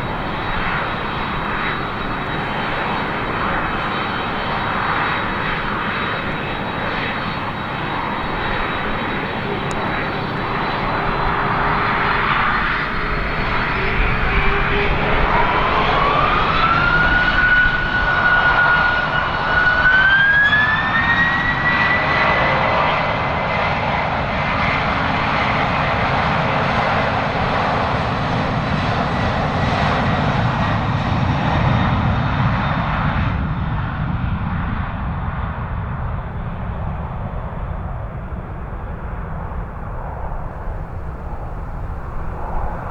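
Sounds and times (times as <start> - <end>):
jet engines spooling up: 0.0 - 22.1, 36.0 - 42.9.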